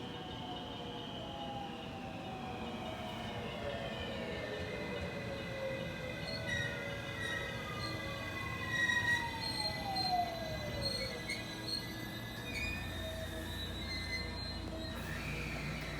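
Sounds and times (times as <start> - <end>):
wheel and brake squealing: 8.7 - 15.9.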